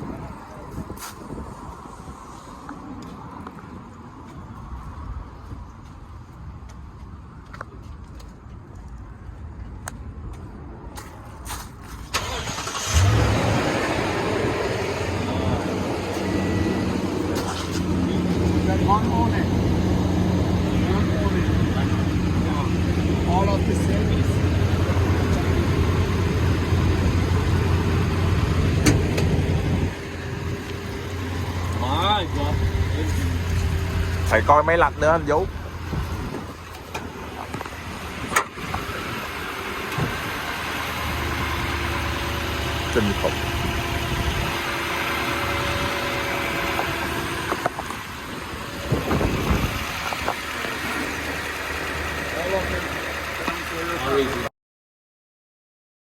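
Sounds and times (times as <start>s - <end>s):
truck engine idling: 12.2s - 54.5s.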